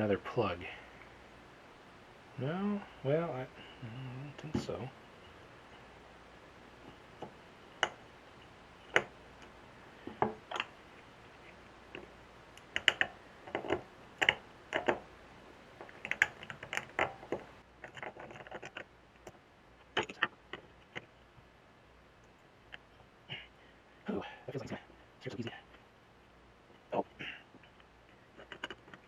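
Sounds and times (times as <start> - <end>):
small metal parts clicking: 11.9 - 15.0, 15.8 - 19.4.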